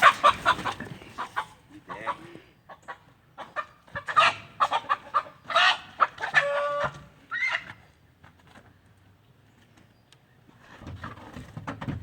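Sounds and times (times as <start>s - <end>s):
chicken clucking and squawking: 0.0s - 7.9s.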